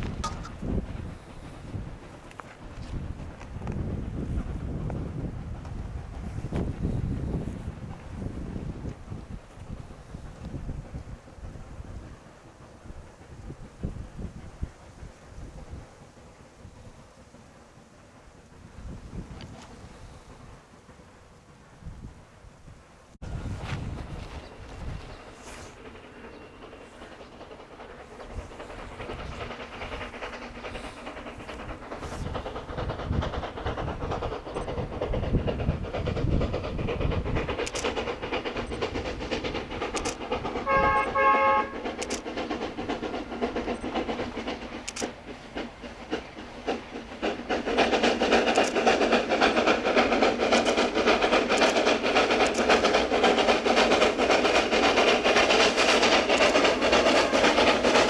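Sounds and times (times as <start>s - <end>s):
steam locomotive running: 0.0s - 58.0s
multi-tone train whistle: 40.6s - 42.2s.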